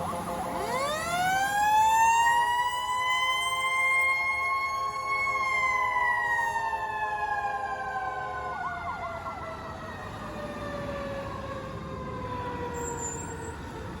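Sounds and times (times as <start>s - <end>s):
fast siren warble: 0.0s - 4.4s
siren winding down: 0.0s - 10.0s.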